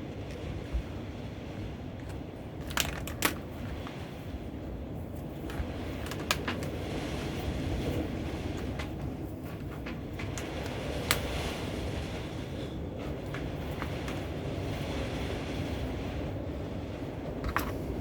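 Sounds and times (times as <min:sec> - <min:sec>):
clicks and taps of tools: 0:17.4 - 0:17.8.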